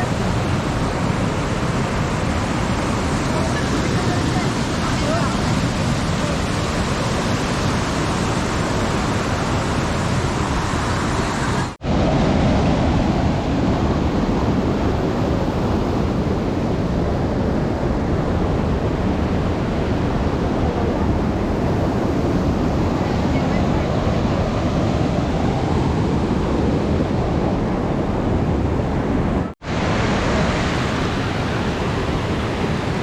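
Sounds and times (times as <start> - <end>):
waterfall rushing water: 0.0 - 13.3, 29.6 - 33.0.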